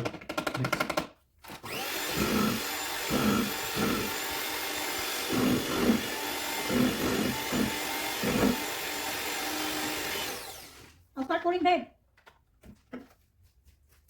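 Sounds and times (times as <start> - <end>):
electric mixer whining: 1.5 - 11.0
mixing blade knocking container: 1.6 - 11.0.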